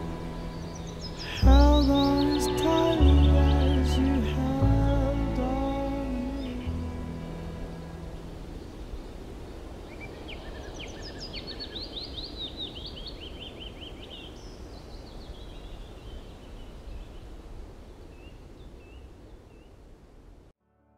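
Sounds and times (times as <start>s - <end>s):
songbird twittering: 0.0s - 4.6s, 9.9s - 17.3s
low outdoor noise: 0.0s - 20.6s.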